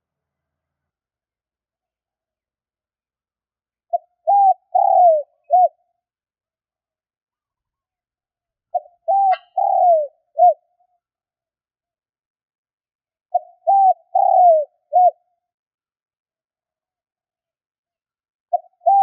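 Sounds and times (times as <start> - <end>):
dove cooing: 3.9 - 5.8, 8.7 - 10.6, 13.3 - 15.2, 18.5 - 19.0.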